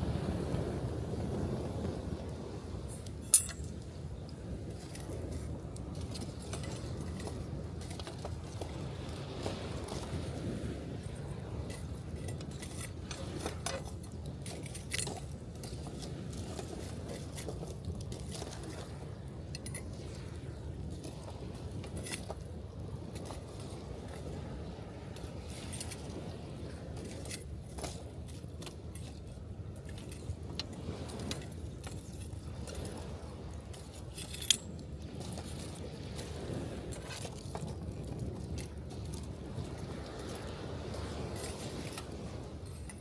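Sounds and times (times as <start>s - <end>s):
gentle surf breaking: 0.0s - 3.4s.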